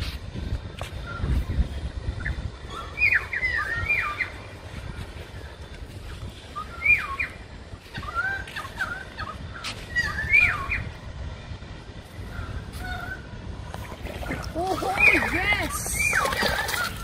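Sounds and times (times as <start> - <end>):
wind rumble on microphone: 0.0 - 17.0
bird whistled calls: 2.2 - 4.4, 6.6 - 7.4, 8.0 - 10.9, 14.8 - 17.0.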